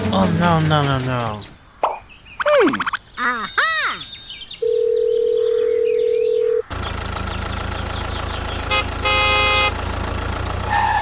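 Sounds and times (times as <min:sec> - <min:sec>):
tractor engine chugging: 0:06.7 - 0:11.0.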